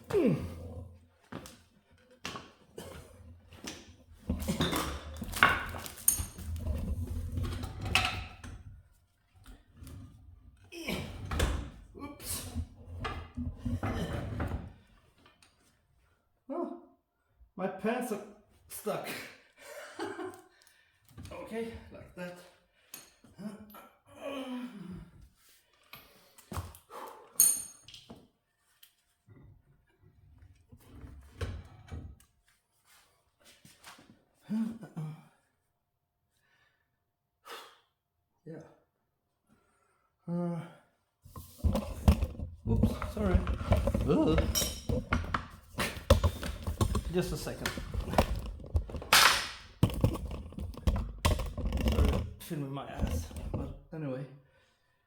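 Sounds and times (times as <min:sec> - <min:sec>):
man grunting: 0:00.0 - 0:00.7
metal clanking and scraping: 0:41.3 - 0:53.8.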